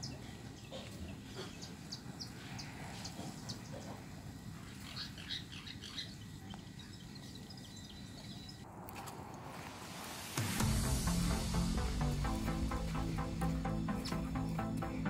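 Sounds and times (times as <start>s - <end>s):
small birds chirping: 0.0s - 8.7s, 12.6s - 15.0s
low steady background noise: 0.0s - 15.0s.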